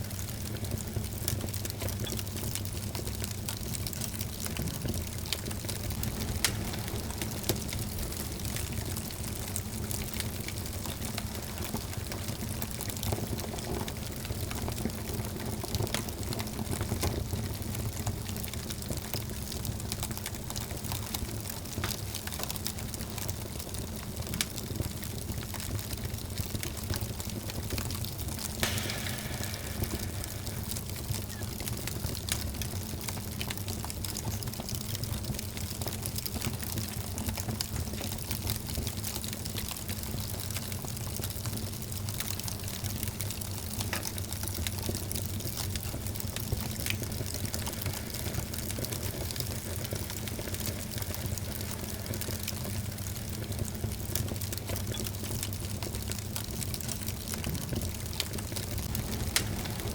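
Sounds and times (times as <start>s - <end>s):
fire crackling and popping: 0.0s - 59.9s
fire flames rumbling: 0.0s - 59.9s
loud hiss: 28.6s - 31.7s, 58.6s - 59.9s.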